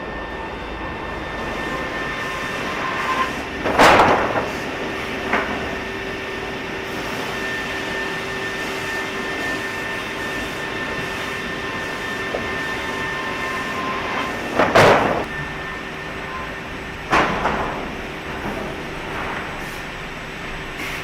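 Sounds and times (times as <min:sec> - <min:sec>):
sawmill machinery drone with whine: 0:00.0 - 0:21.0
loud machine clunk: 0:01.4 - 0:07.5, 0:12.0 - 0:20.0.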